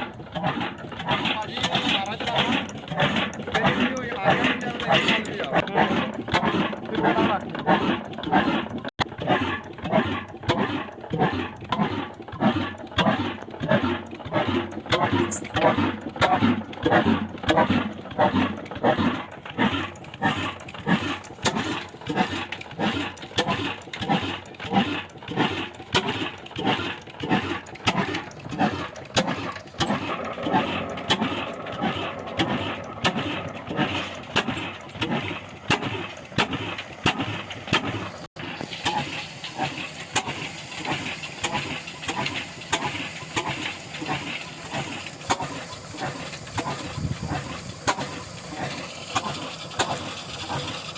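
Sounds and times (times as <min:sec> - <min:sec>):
diesel engine exhaust beat: 0:00.0 - 0:50.9
steady hum: 0:29.7 - 0:35.7.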